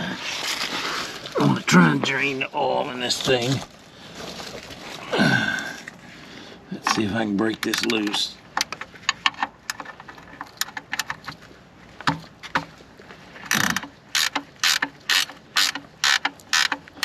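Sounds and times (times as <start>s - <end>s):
ratchet wrench ratcheting: 13.5s - 17.0s.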